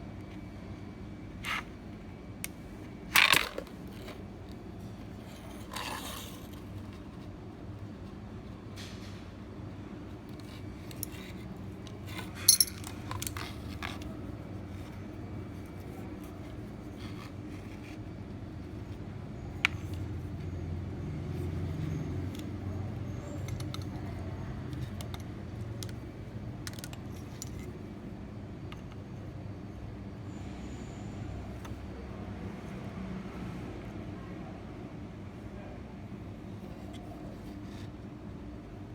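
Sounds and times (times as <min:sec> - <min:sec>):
small hard objects clinking: 0:12.4 - 0:13.5.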